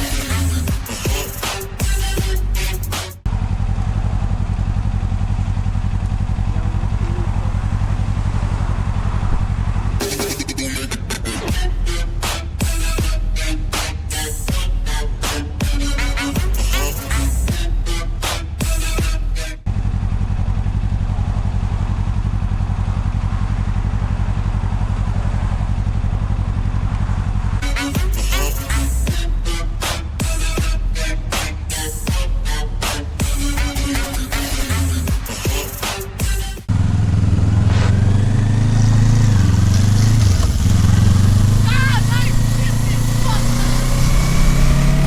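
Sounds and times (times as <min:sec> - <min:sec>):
motorcycle engine idling: 0:03.3 - 0:11.9, 0:18.6 - 0:27.6, 0:36.6 - 0:45.0.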